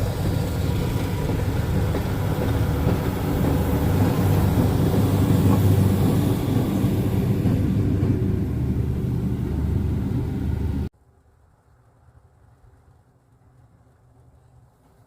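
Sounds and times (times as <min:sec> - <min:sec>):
hiss: 0:00.0 - 0:07.9
train rumbling: 0:00.0 - 0:10.9.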